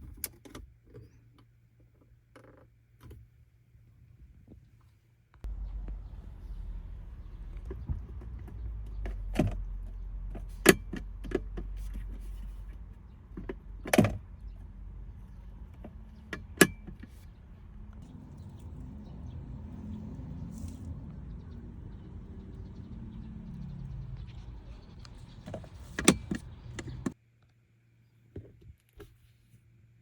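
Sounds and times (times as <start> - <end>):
low steady rumble: 5.4 - 27.2
sharp clicks and knocks: 24.1 - 27.2.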